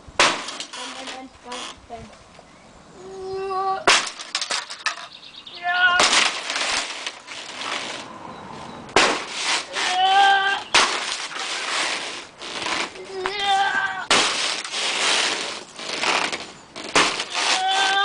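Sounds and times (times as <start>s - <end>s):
voices calling out: 2.9s - 9.0s, 9.6s - 14.2s
heavy smashing impacts: 3.9s - 4.9s, 6.0s - 8.0s, 8.9s - 10.0s, 10.7s - 13.0s, 14.0s - 18.0s
crackle of breaking material: 6.0s - 8.0s, 14.1s - 18.0s.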